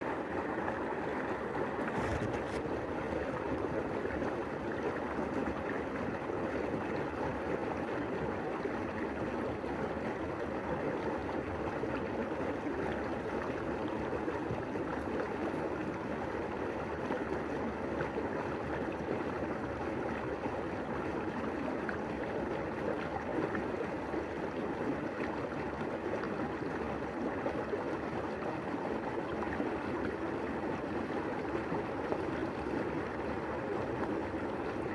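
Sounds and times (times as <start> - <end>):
stream water rushing: 0.0 - 3.7.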